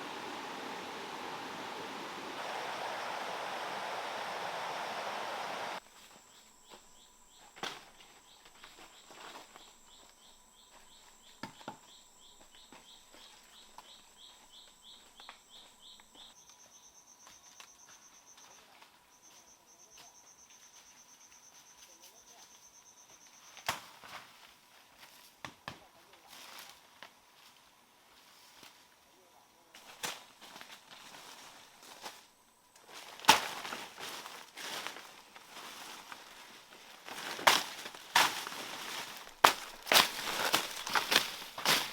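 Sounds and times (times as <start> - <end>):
rushing water: 0.0 - 5.8
insect high whine with chirps: 0.0 - 23.7, 30.4 - 41.9
insect high-pitched trill: 5.8 - 23.7, 37.2 - 41.9.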